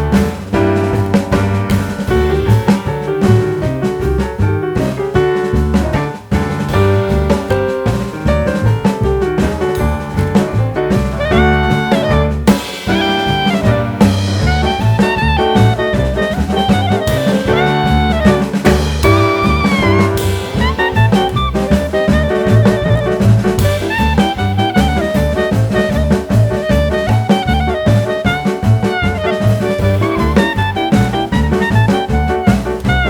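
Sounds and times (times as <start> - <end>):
bass: 0.0 - 33.0
drum kit: 0.0 - 33.0
horn melody: 9.6 - 33.0.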